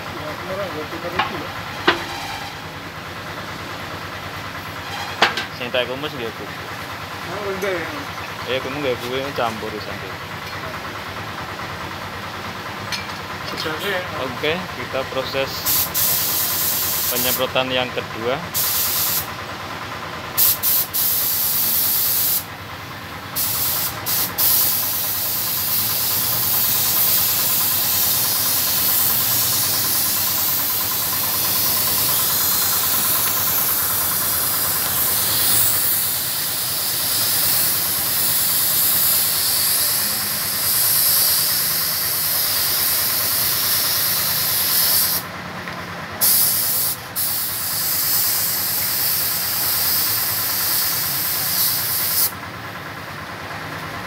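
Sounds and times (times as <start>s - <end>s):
spray gun hissing: 15.7s - 17.4s, 18.6s - 19.3s, 20.4s - 22.5s, 23.4s - 45.2s, 46.2s - 52.4s.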